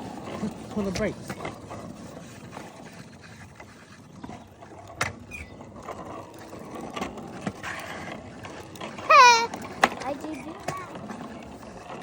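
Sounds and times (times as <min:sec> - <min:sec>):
bicycle rolling over pavement: 0:00.0 - 0:12.0.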